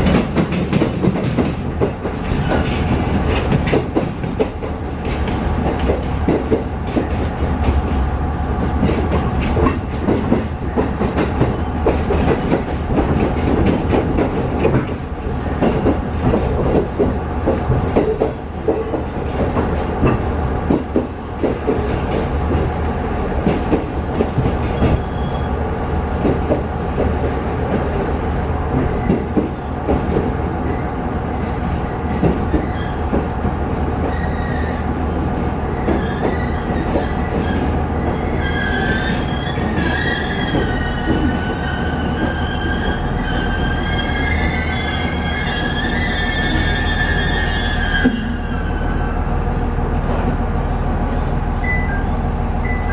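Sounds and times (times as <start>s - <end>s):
train wheels clacking over rail joints: 0.0s - 22.8s.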